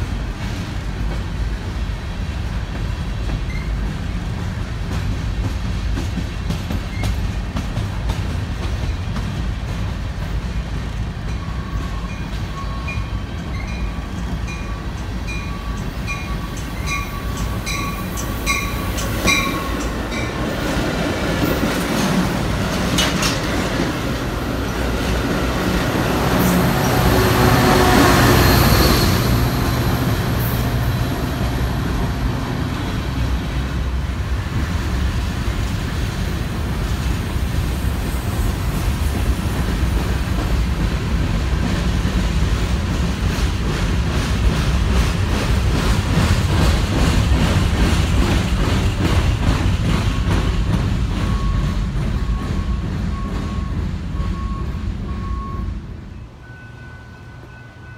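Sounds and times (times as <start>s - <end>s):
commuter train passing with whine: 0.0s - 57.9s
freight train rumble and rail clatter: 0.0s - 57.9s.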